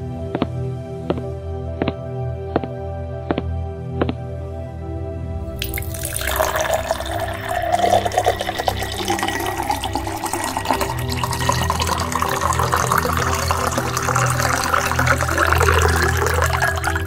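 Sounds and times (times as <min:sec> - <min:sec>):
liquid pouring into container: 0:05.5 - 0:17.0.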